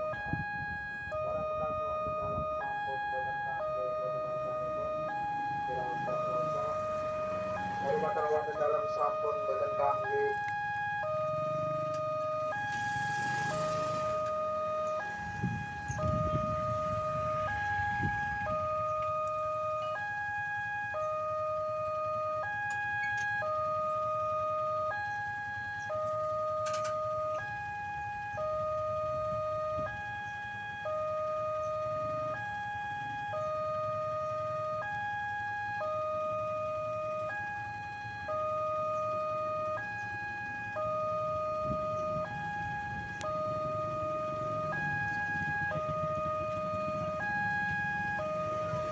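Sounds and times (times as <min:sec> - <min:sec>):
level crossing alarm: 0:00.0 - 0:48.9
road traffic rumbling: 0:00.0 - 0:48.9.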